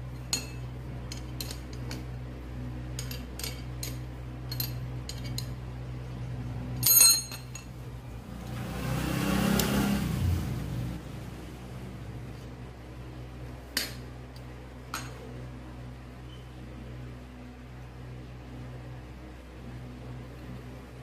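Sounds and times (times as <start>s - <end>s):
low steady hum: 0.0s - 9.0s, 10.0s - 21.0s
metal parts clinking: 0.2s - 2.1s, 3.0s - 5.6s, 6.8s - 7.8s.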